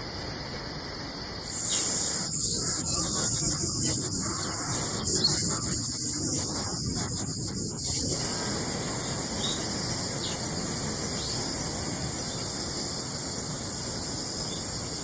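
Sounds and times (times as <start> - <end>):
insect chorus: 0.0 - 15.0
outdoor background hiss: 0.0 - 15.0
faint bird chirps: 1.5 - 11.5.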